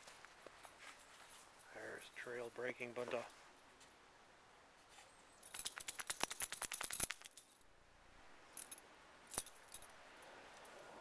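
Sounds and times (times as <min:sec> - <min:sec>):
small metallic jingling: 0:05.4 - 0:07.7, 0:08.5 - 0:10.8.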